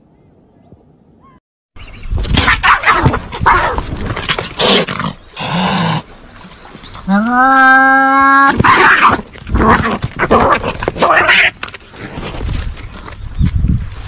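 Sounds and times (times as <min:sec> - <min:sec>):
animal squeals and yelps: 0:02.4 - 0:03.8.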